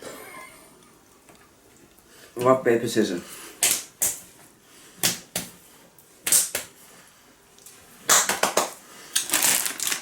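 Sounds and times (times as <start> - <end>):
plastic packaging crinkling: 9.1 - 10.0.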